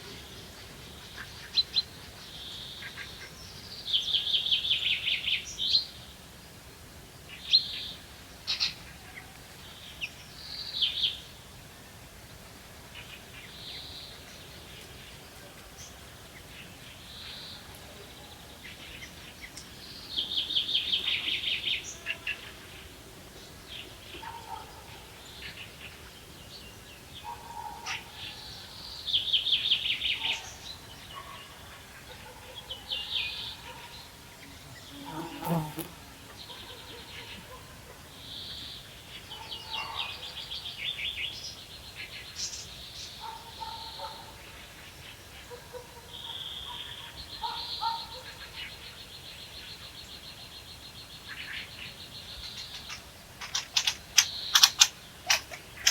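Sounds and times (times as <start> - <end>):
songbirds trilling: 15.8 - 55.9.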